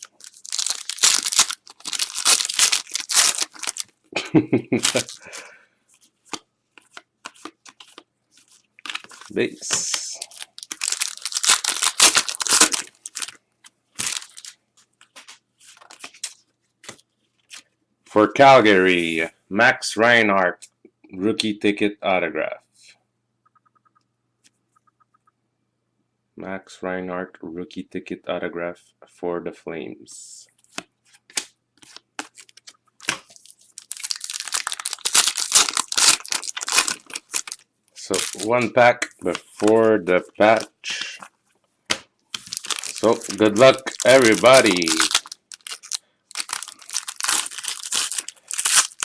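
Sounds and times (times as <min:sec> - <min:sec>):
wrapper crinkling and crackling: 0:00.0 - 0:04.0, 0:04.7 - 0:13.4, 0:14.0 - 0:17.7, 0:31.8 - 0:41.3, 0:42.3 - 0:49.0.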